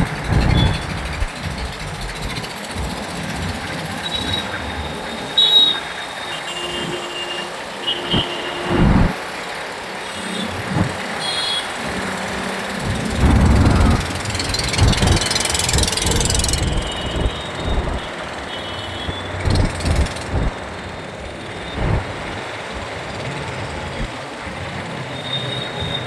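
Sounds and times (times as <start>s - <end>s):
vehicle passing: 0.0s - 2.4s, 12.8s - 24.1s
traffic and road noise: 0.0s - 26.0s
vehicle horns beeping: 4.0s - 9.2s, 10.0s - 11.9s, 14.7s - 20.5s.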